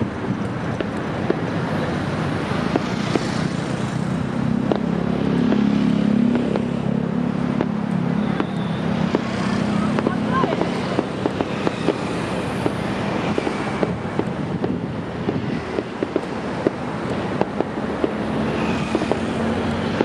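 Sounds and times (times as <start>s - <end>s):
distant fireworks popping: 0.0s - 20.0s
traffic rumble: 0.0s - 20.0s.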